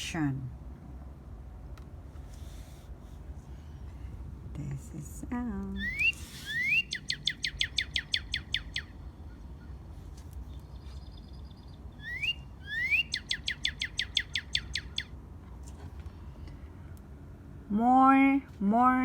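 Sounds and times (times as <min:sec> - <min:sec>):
bird singing whistled notes: 0:05.8 - 0:09.8, 0:10.7 - 0:15.1.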